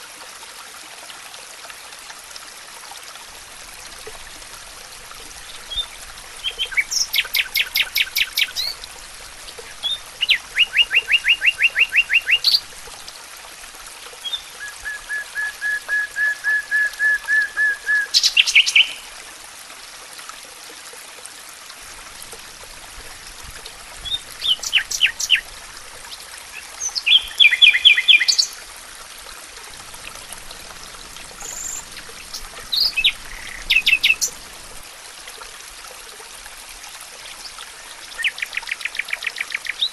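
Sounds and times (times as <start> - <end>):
stream rushing: 0.0 - 39.9
songbirds trilling: 24.1 - 25.4, 31.4 - 34.4.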